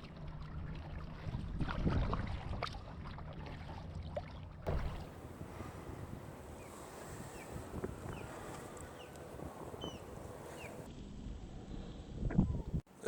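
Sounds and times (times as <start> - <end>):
wind rumble on microphone: 0.0 - 3.6, 4.7 - 12.9
paddle strokes in water: 0.0 - 10.9
thump: 4.7 - 5.1.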